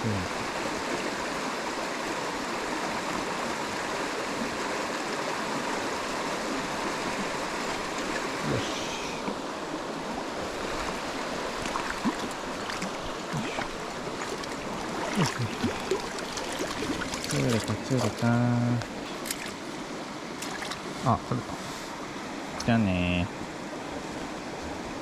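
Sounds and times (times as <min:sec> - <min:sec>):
stream rushing over rocks: 0:00.0 - 0:22.7
short clicks or splashes: 0:13.6 - 0:19.6, 0:20.4 - 0:20.8.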